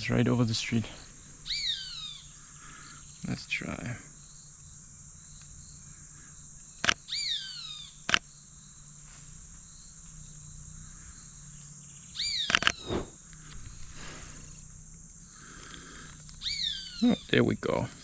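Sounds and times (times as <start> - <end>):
high insect drone: 13.9 - 14.6.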